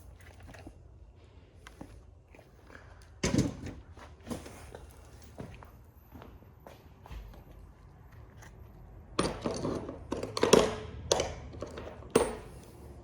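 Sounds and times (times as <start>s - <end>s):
metal parts knocking and clanking: 9.2s - 12.8s.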